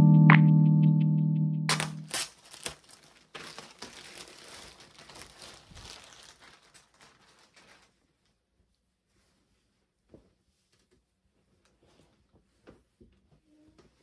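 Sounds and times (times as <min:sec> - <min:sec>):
piano music: 0:00.0 - 0:02.2
crinkling and rustling: 0:01.7 - 0:14.0.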